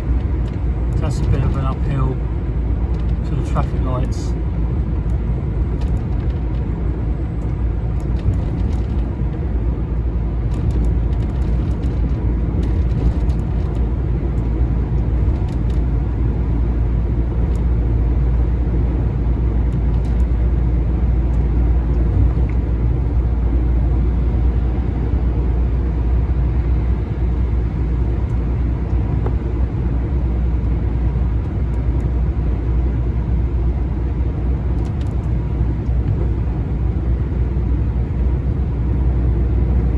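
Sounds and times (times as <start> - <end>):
lorry diesel engine rumble: 0.0 - 39.9
road noise: 0.0 - 39.9.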